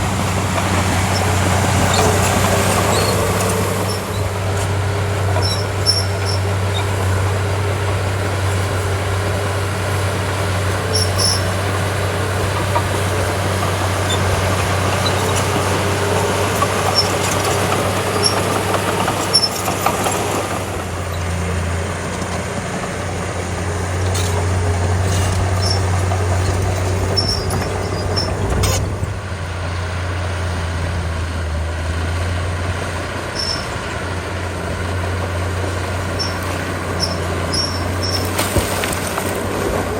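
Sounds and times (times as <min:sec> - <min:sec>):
bulldozer diesel engine running: 0:00.0 - 0:39.9
light metal clanks: 0:10.8 - 0:29.3, 0:36.2 - 0:39.3.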